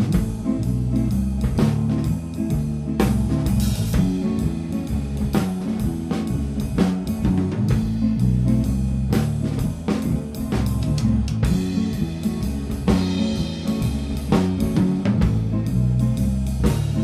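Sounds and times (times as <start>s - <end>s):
instrumental rock band playing: 0.0s - 17.0s.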